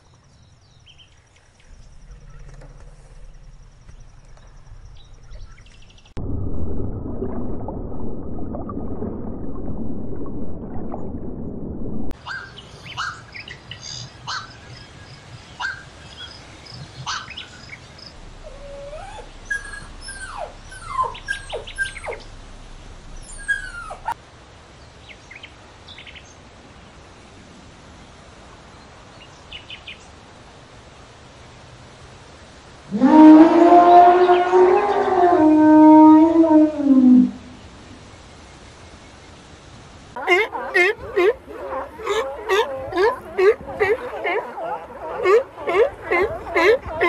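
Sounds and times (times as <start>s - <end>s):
birds chirping: 0.1s - 6.2s
muffled low rushing noise: 1.5s - 12.2s, 18.1s - 24.1s.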